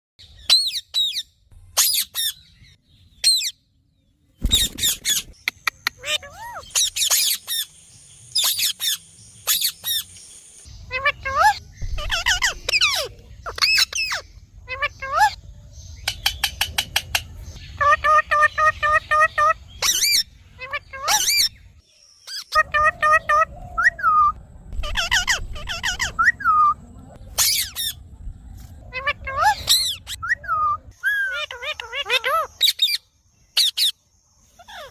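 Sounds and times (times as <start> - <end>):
parrots squawking: 4.5 - 7.7, 10.9 - 15.4, 17.7 - 21.6, 22.3 - 26.8, 27.4 - 28.0, 28.9 - 33.0, 34.6 - 34.9
parrot squawks: 6.0 - 7.7, 17.8 - 21.5, 22.3 - 26.8
parrot calls: 10.9 - 15.4, 22.3 - 26.8.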